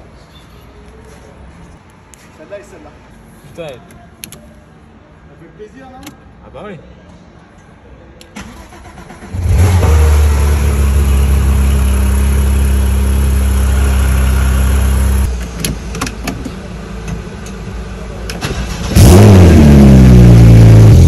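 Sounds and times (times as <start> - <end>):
car engine starting and idling: 8.2 - 21.0.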